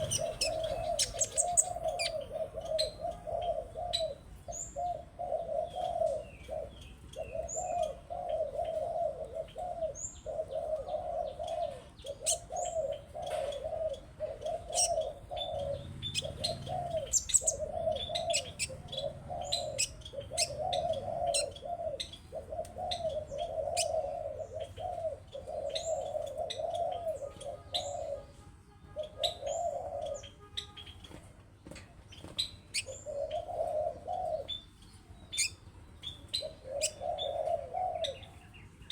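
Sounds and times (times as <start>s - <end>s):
sharp bird ticks: 0.0s - 2.3s, 15.6s - 22.8s
high bird chirps: 0.0s - 3.0s, 14.6s - 21.6s
dove-like cooing: 0.0s - 28.4s, 29.0s - 30.4s, 32.7s - 38.9s.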